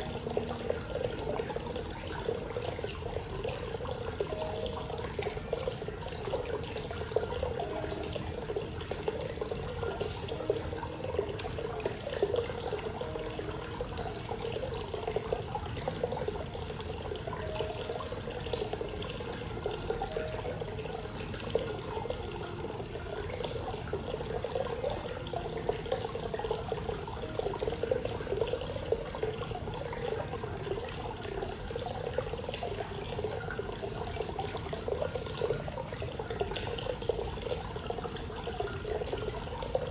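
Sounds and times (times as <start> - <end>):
water pouring into a bath: 0.0 - 39.9.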